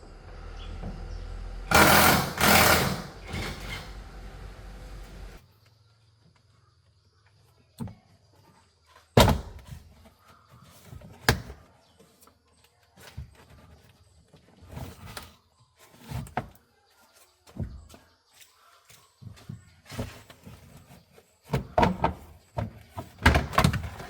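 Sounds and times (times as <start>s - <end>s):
knocks and rattling: 0.7s - 4.4s
sharp clunks and thuds: 9.2s - 9.8s.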